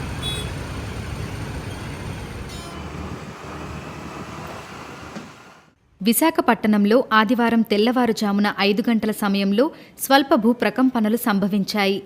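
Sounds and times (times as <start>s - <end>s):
road traffic rumble: 0.0s - 5.8s
brief high tones: 2.5s - 3.1s.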